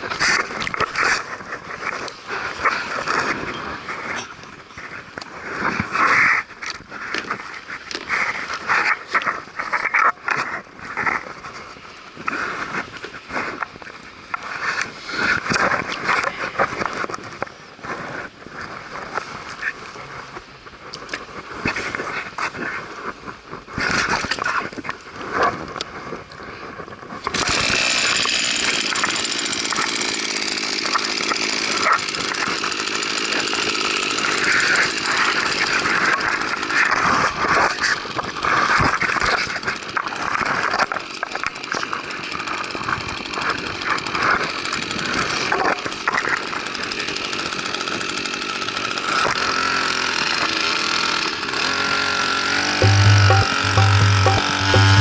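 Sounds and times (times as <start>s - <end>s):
outboard motor running: 0.0s - 23.4s, 24.0s - 55.0s.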